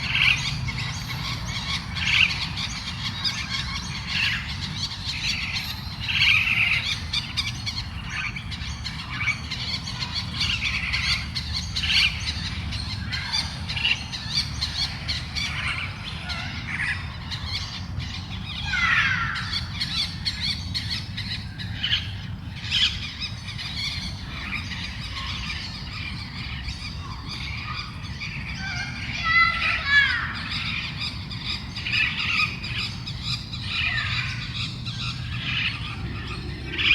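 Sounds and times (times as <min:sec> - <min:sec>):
steady low rumble: 0:32.2 - 0:36.9.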